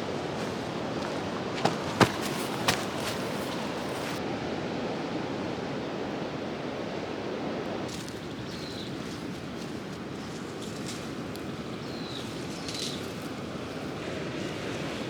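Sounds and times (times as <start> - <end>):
steady rushing noise: 0.0 - 4.2.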